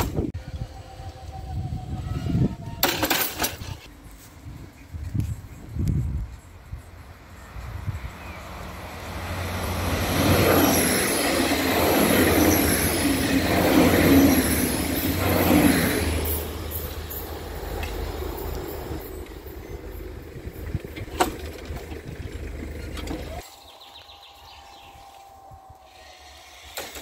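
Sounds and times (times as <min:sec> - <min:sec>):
train passing on tracks: 0:03.7 - 0:27.0.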